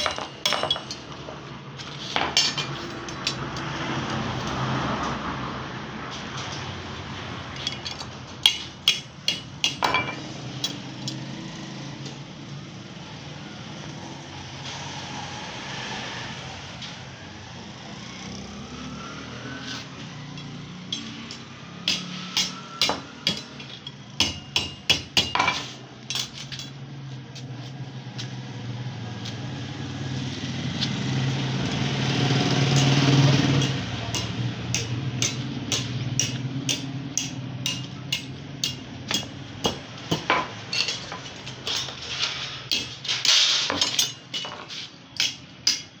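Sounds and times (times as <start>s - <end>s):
hammer striking steel: 0.0s - 1.2s, 2.2s - 3.7s, 7.6s - 11.2s, 20.3s - 26.7s, 32.7s - 42.0s, 42.7s - 46.0s.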